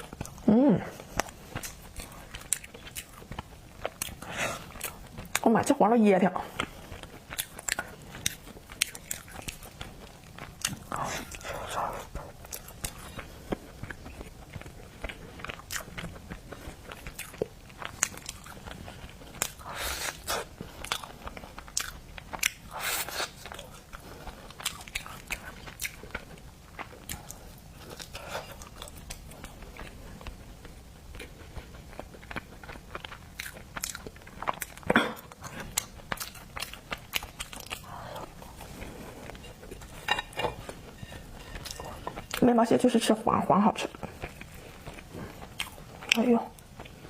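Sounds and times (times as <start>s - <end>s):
crunchy food chewing: 0.0s - 5.6s, 6.4s - 42.5s, 43.8s - 47.0s.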